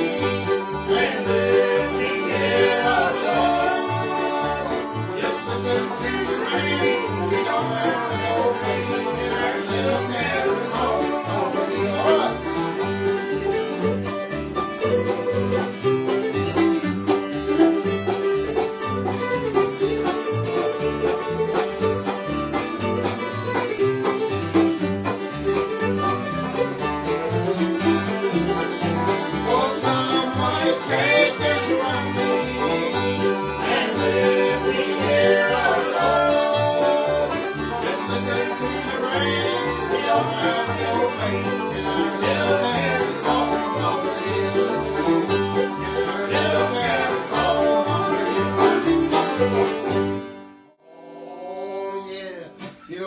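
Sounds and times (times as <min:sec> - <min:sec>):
sliding bowed notes: 0:00.0 - 0:50.3
banjo picking: 0:00.0 - 0:50.7
acoustic guitar: 0:00.0 - 0:50.8, 0:52.0 - 0:53.0.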